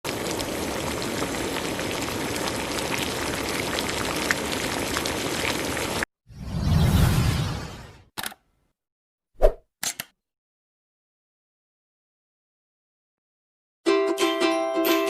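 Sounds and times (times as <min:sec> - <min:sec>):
food sizzling in a pan: 0:00.1 - 0:06.0.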